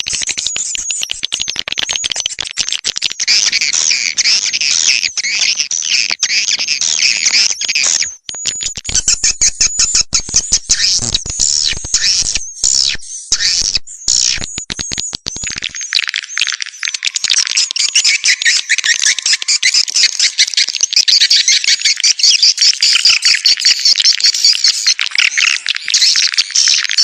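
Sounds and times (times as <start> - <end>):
swiftlets twittering chorus: 3.2 - 27.0
sharp clicks: 6.0 - 22.0.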